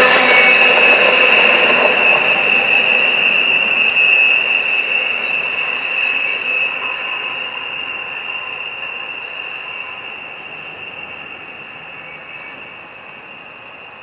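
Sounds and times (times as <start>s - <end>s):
rail cars rolling past: 0.0s - 7.6s
faint high whine: 0.0s - 14.0s
high wheel squeal: 0.0s - 14.0s.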